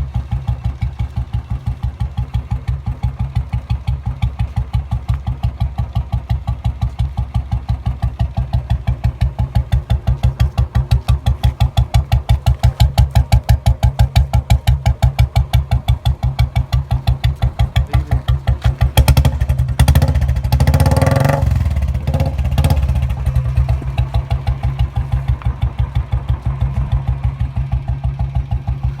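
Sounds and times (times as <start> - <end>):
motorcycle engine idling: 0.0 - 29.0
motorcycle engine revving: 0.0 - 29.0.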